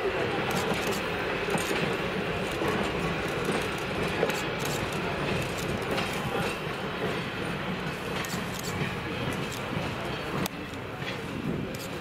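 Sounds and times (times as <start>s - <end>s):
train rumbling along track: 0.0s - 12.0s
scattered clicks: 0.4s - 6.2s.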